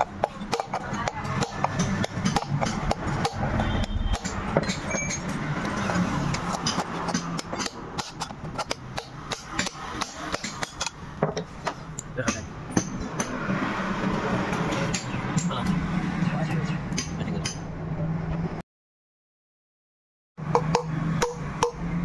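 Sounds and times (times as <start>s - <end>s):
hammer striking metal: 0.0s - 13.7s, 14.5s - 15.8s, 16.9s - 17.7s, 20.4s - 22.0s.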